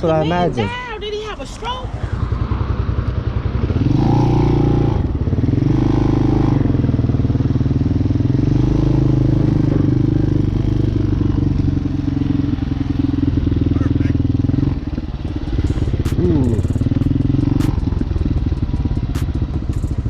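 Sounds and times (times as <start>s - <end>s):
dirt bike engine accelerating: 0.0s - 20.0s.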